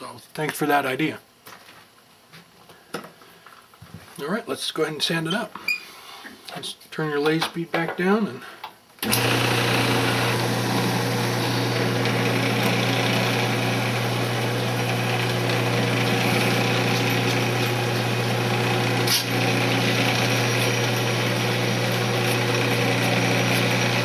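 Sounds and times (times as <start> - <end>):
wood lathe motor humming: 9.0 - 24.0.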